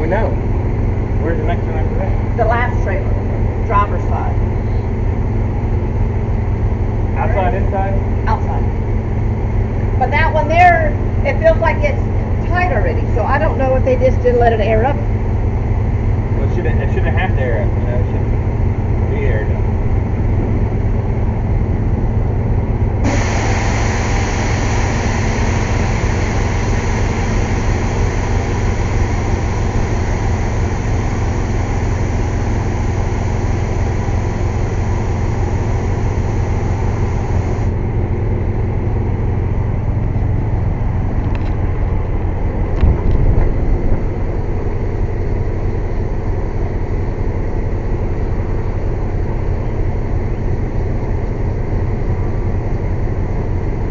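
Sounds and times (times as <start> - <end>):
air compressor engine running: 17.6 - 53.9
compressed air hissing: 23.0 - 37.8.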